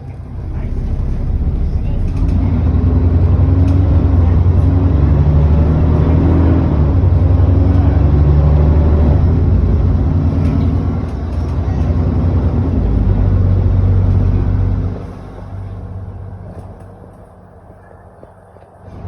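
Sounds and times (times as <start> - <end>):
bus diesel engine running: 0.0 - 19.0.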